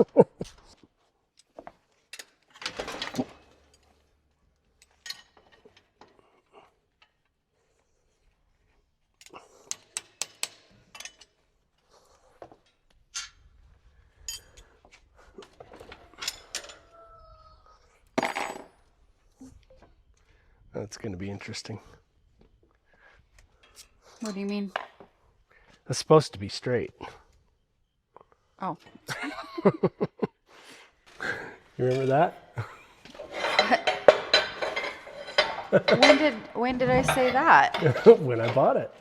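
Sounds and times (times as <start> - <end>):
metal tools clinking: 4.7 - 6.1, 9.2 - 11.5, 14.1 - 14.8, 15.7 - 16.9, 31.8 - 39.0.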